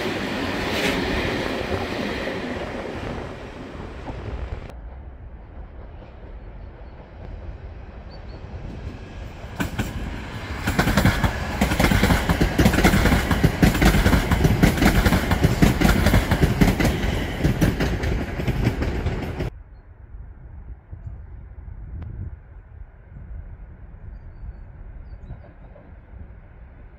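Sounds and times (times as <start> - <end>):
train wheels clattering on rails: 0.0 - 19.5.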